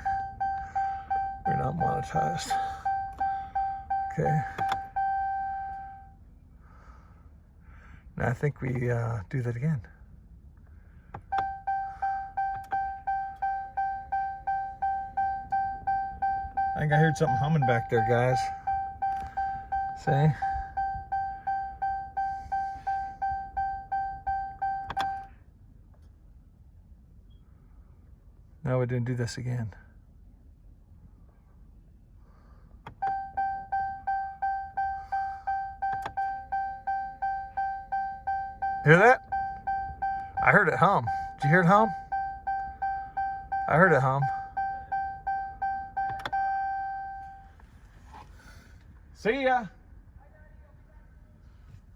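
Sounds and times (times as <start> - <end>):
ignition click: 0.0 - 6.0, 11.1 - 25.3, 32.8 - 48.3
dashboard warning chime beeping: 0.0 - 6.2, 8.2 - 9.8, 11.2 - 25.3, 32.9 - 49.7
faint steady hum: 0.0 - 51.9.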